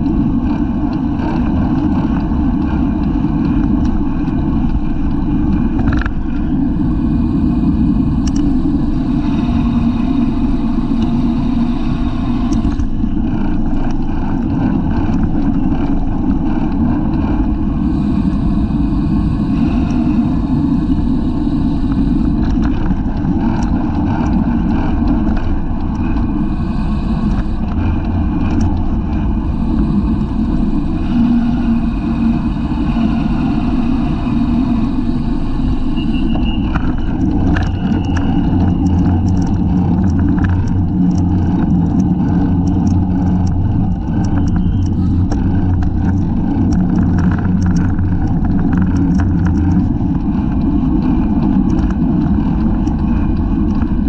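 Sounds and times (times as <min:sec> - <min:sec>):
wind rushing over microphone: 0:00.0 - 0:54.0
bike clicks: 0:36.4 - 0:54.0.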